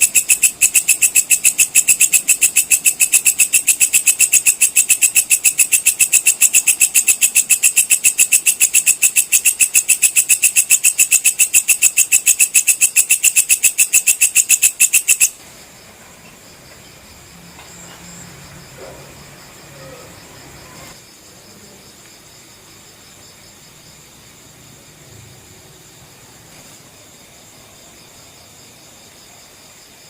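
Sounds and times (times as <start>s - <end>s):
bush-cricket shrill chirps: 0.0s - 21.9s.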